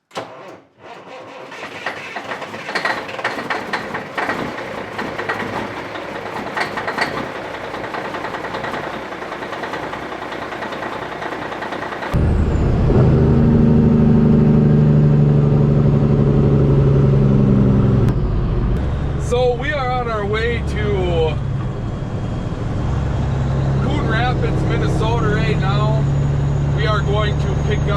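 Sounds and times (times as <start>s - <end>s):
diesel truck engine drone: 1.6s - 27.9s
vehicle clicks and knocks: 1.8s - 12.2s.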